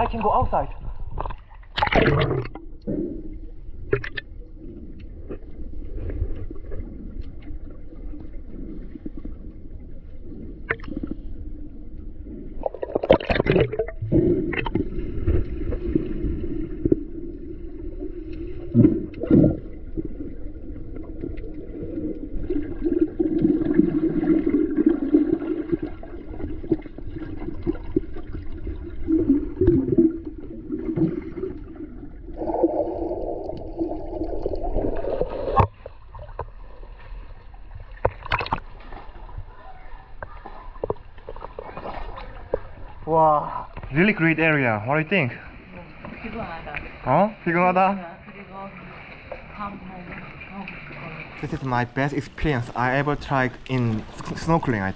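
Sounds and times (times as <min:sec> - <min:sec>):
knocks or splashes: 0:01.2 - 0:02.6.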